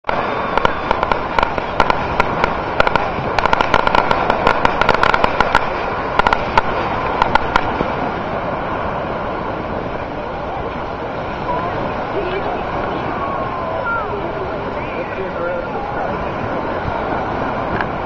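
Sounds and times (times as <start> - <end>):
outdoor noise: 0.0 - 18.0
fireworks crackling: 0.1 - 18.0
voices: 9.8 - 18.0.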